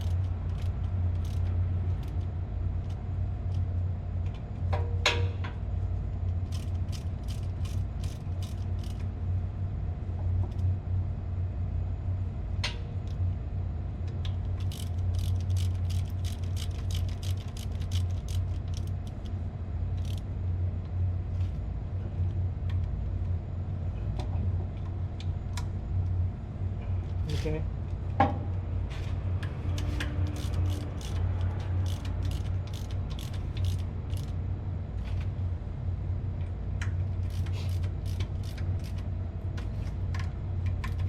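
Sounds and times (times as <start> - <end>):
hand tool clicking: 29.8 - 34.3.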